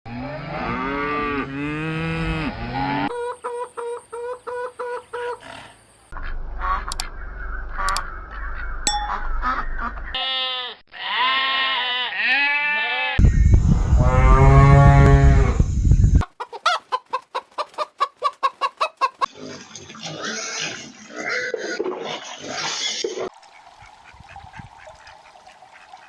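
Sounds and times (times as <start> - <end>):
chicken clucking rapidly: 3.2 - 5.5, 16.2 - 19.3.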